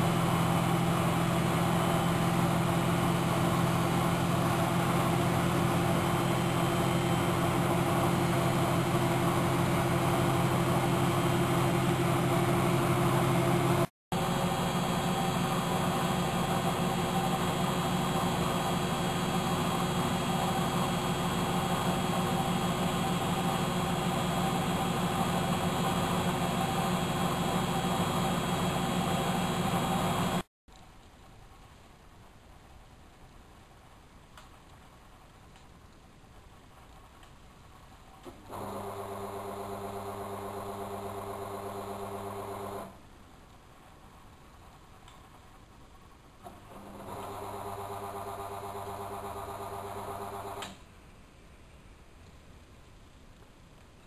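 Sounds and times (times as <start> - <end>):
washing machine humming: 0.0 - 30.5, 38.2 - 43.0, 46.4 - 50.8.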